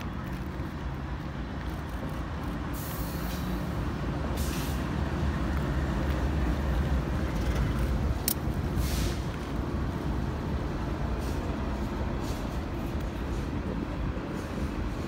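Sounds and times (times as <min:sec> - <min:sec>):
short bursts of hiss: 0:04.4 - 0:04.9, 0:08.8 - 0:09.2.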